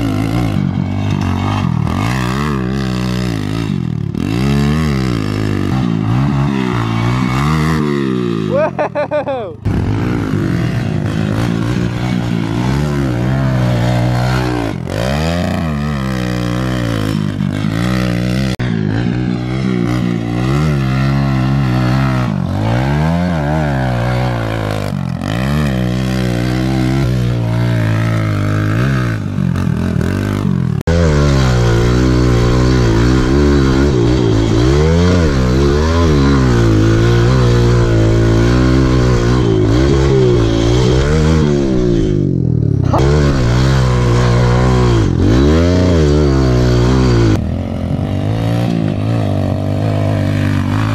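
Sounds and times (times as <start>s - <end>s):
pit bike engine revving: 0.0s - 50.9s.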